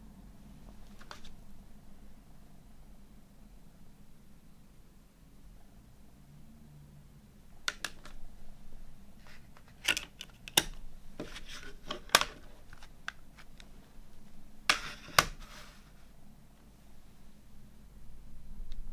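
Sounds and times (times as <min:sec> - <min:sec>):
soft packaging rustling: 0:09.1 - 0:16.7.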